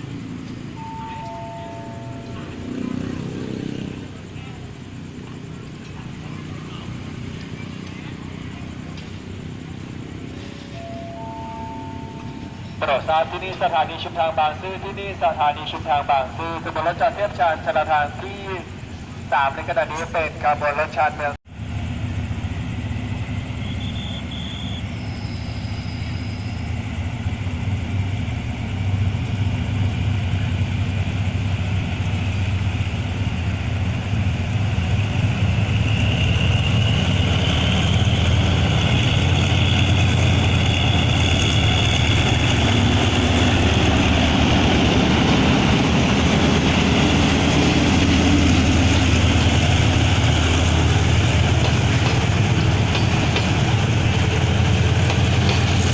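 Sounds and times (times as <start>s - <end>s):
diesel train engine rumbling: 0.0s - 55.9s.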